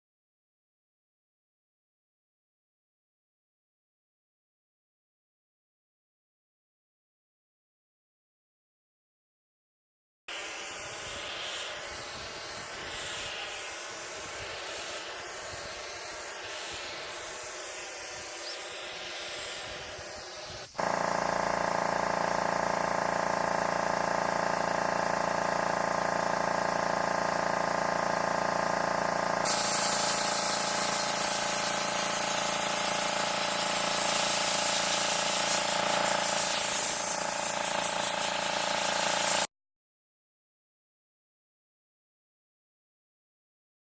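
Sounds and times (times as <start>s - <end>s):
water spraying hard: 10.3s - 20.9s, 29.4s - 39.5s
pump motor hum: 10.4s - 39.5s.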